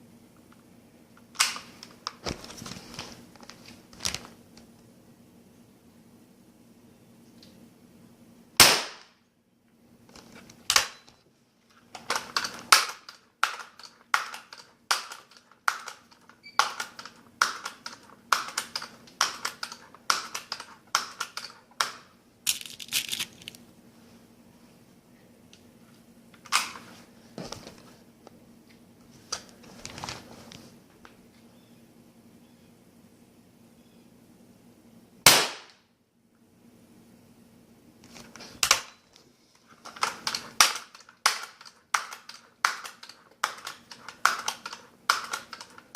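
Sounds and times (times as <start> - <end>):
air rifle shot: 8.6 - 9.2, 35.2 - 35.8
scattered clicks: 39.8 - 45.9.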